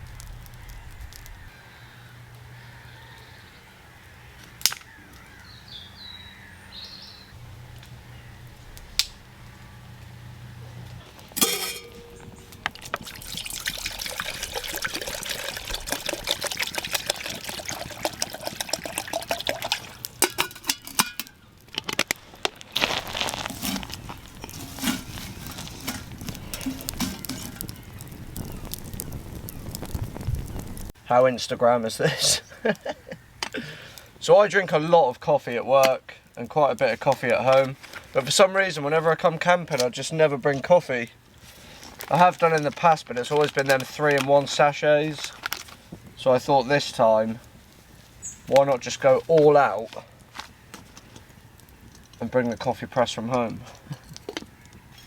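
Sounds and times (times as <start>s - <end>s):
water pouring and splashing: 12.5s - 31.0s.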